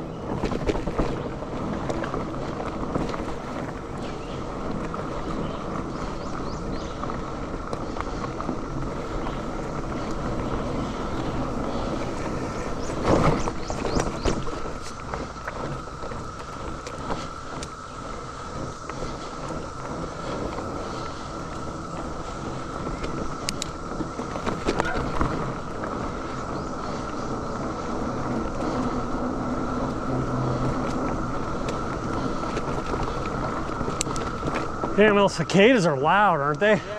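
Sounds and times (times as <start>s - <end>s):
cicadas droning: 0.0s - 36.9s
mountain bike rattling on dirt: 0.0s - 36.9s.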